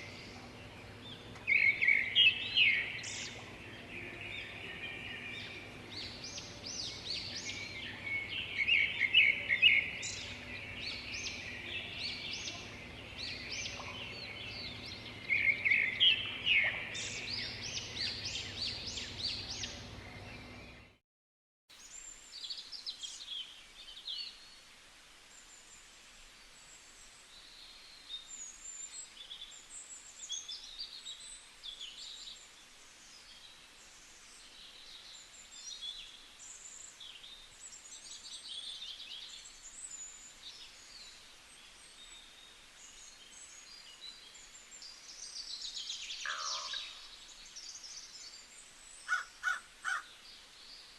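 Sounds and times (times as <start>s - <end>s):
faint low hum: 0.0s - 21.0s
songbirds chirping and singing: 0.0s - 21.0s, 27.3s - 50.9s.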